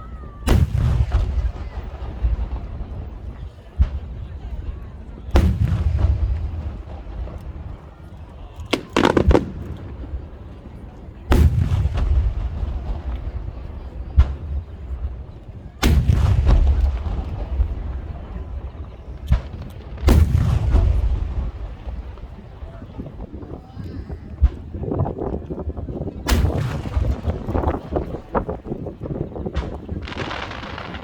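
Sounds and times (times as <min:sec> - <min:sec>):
fireworks sharp cracks: 0:00.0 - 0:23.6, 0:26.3 - 0:31.0
fireworks shells bursting: 0:08.8 - 0:10.1.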